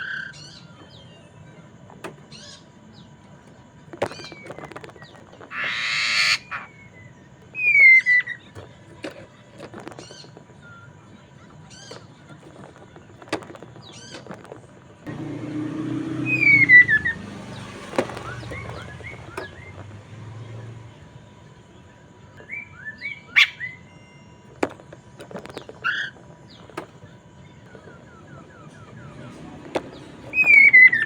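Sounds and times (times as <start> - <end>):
bird chirping: 0.0 - 3.4, 4.0 - 8.7, 9.8 - 31.0
harsh rasping bird call: 5.5 - 7.0, 15.1 - 20.0, 27.9 - 31.0
loud falling bird whistles: 16.1 - 17.2, 30.3 - 31.0.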